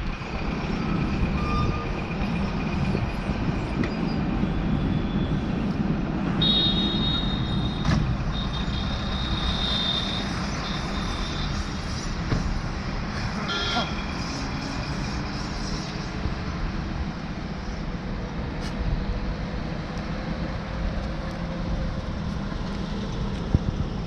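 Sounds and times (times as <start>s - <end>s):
truck engine rumbling: 0.0s - 6.4s.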